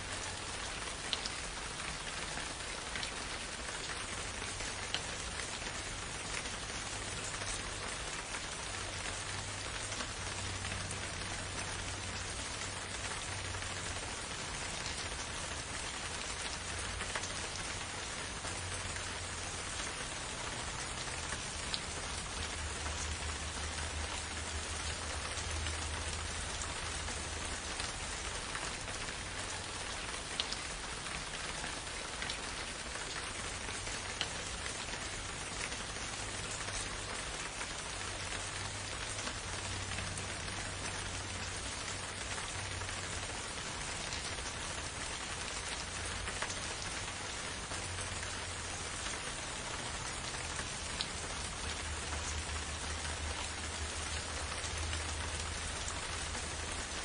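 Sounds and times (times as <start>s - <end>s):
rain falling in forest: 0.0s - 57.0s.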